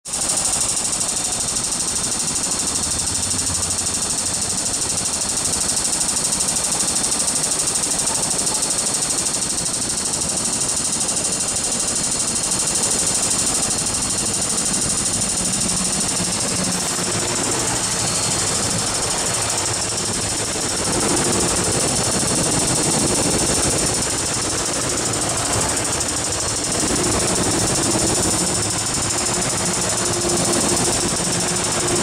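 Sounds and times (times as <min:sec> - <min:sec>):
steady pulsing hiss: 0:00.1 - 0:32.0
train passing rumble: 0:12.8 - 0:32.0.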